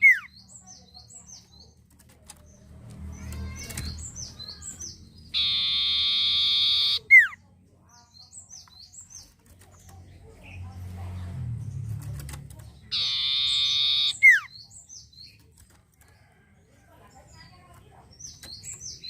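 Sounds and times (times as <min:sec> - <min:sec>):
songbird singing high chirps: 0:03.5 - 0:10.6, 0:12.8 - 0:15.5, 0:18.1 - 0:19.0.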